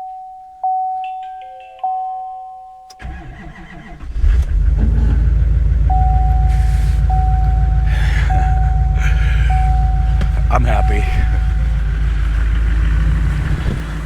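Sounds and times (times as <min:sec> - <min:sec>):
dashboard chime dinging: 0:00.0 - 0:03.0, 0:05.9 - 0:12.4
diesel engine cranking: 0:03.0 - 0:14.0
diesel engine running: 0:03.0 - 0:14.0.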